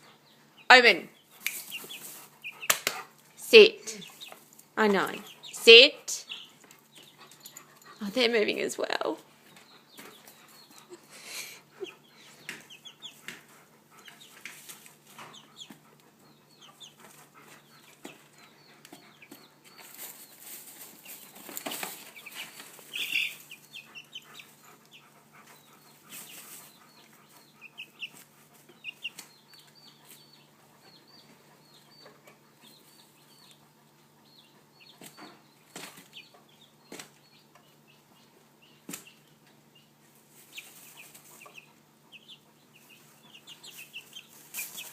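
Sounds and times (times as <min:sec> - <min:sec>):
chickens clucking: 0:00.0 - 0:44.9
rustling in hay: 0:19.8 - 0:23.6.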